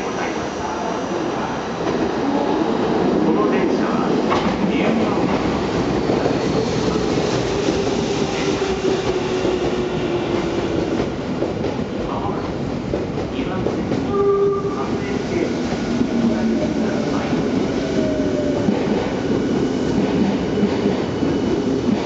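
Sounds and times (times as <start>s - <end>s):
train wheels rumbling on rail: 0.0s - 22.0s
clickety-clack over rail joints: 4.2s - 14.1s.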